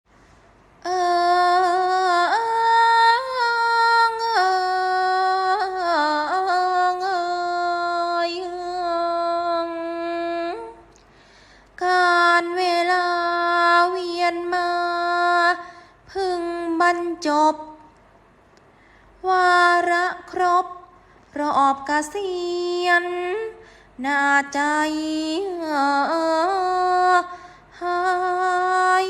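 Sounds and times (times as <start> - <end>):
woman singing slow melody: 0.8 - 11.0, 11.8 - 18.0, 19.2 - 29.0.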